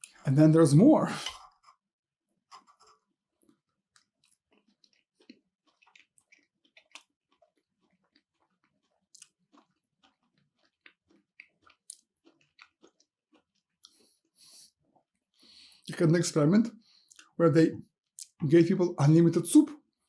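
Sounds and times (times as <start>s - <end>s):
person chewing food: 2.6s - 15.9s, 16.8s - 18.4s.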